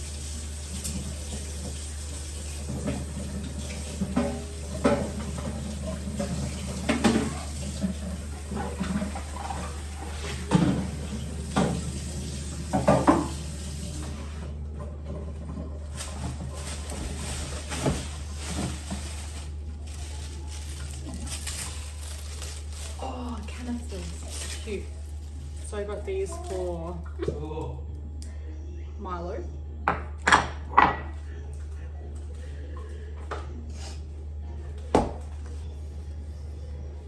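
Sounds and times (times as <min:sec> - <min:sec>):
tap water running into sink: 0:00.0 - 0:19.3
items clattering against sink: 0:00.7 - 0:27.4.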